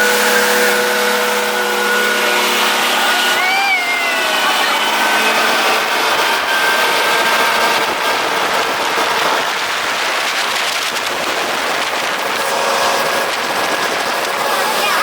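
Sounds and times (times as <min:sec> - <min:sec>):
faint boat engine hum: 0:00.0 - 0:15.0
wind and water rushing: 0:00.0 - 0:15.0.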